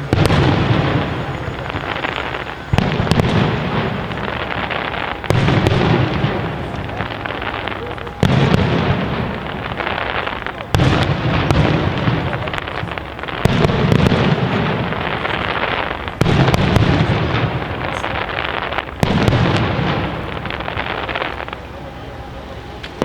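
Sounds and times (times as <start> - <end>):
firework bangs with rolling rumble: 0.0 - 23.0
firework crackles: 0.0 - 23.0.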